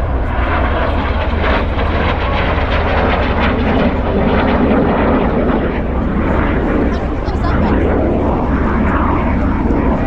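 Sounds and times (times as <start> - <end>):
aircraft engine rushing: 0.0 - 10.0.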